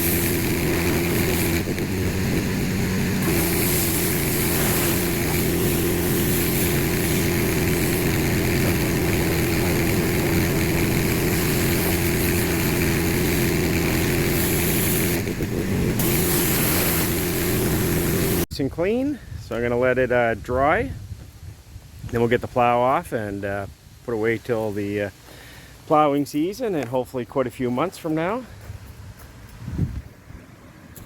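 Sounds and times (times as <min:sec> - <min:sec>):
pressure washer motor running: 0:00.0 - 0:18.5
water spray hissing: 0:00.0 - 0:18.5.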